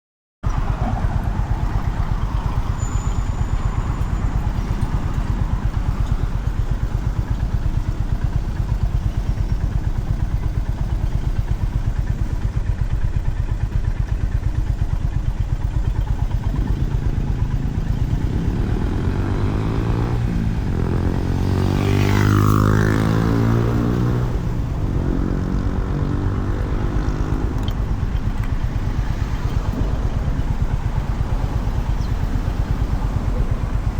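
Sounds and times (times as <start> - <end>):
motorcycle engine running: 0.4 - 33.9.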